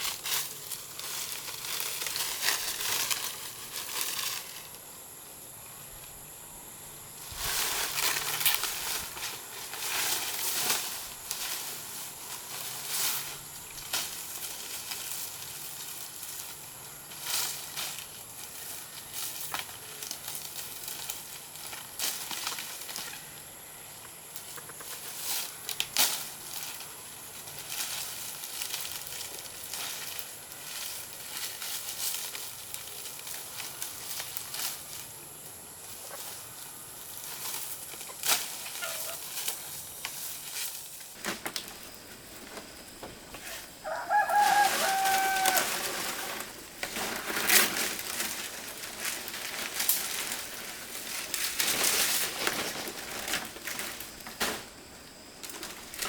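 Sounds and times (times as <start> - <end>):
rustling: 0.0 - 4.8, 7.1 - 23.5, 24.4 - 56.0
rooster crowing: 43.8 - 46.1.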